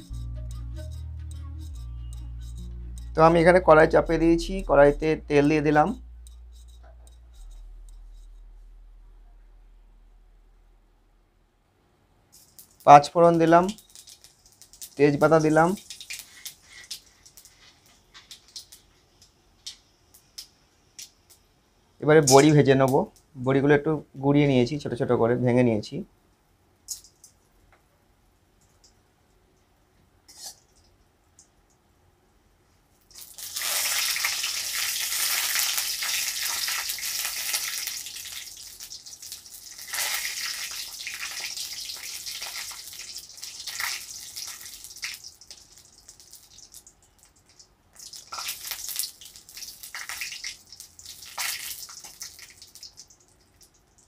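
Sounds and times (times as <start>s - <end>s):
food sizzling in hot oil: 12.4s - 20.4s, 33.1s - 54.0s.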